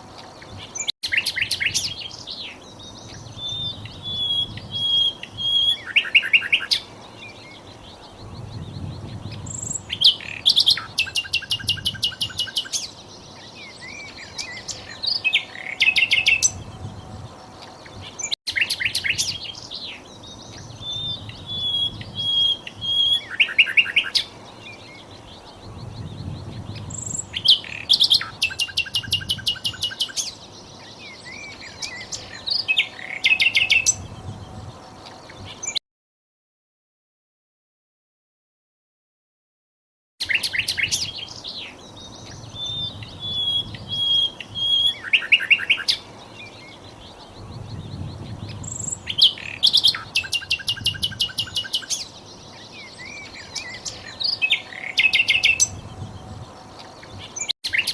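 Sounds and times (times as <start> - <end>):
bird trills and whistles: 3.1 - 6.9, 8.5 - 17.2, 20.5 - 24.3, 26.0 - 30.4, 42.2 - 46.0, 47.7 - 52.1, 52.7 - 57.9.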